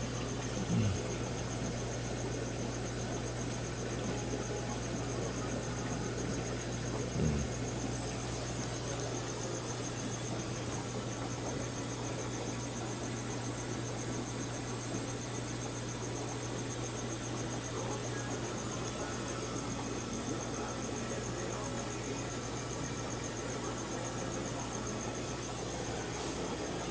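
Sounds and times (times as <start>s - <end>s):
aquarium filter hum and hiss: 0.0s - 26.9s.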